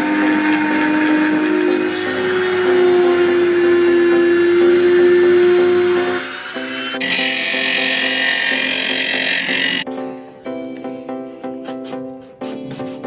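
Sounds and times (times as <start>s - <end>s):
small saw motor whining: 0.0s - 9.8s
background music: 0.0s - 13.0s.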